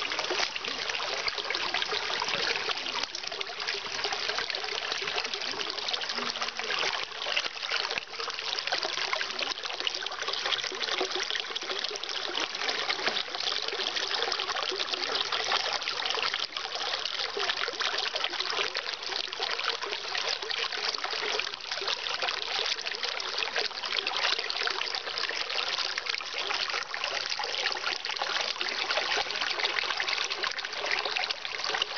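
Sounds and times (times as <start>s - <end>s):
stream water trickling over rocks: 0.0s - 31.9s.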